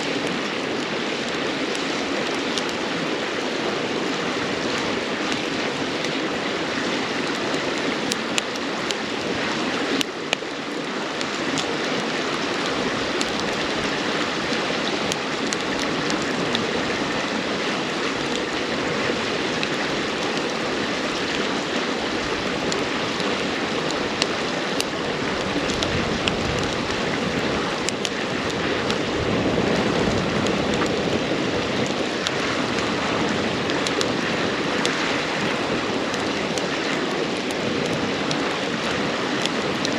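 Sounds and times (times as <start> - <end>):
campfire crackling: 0.0 - 39.9
river flowing over rocks: 0.0 - 39.9.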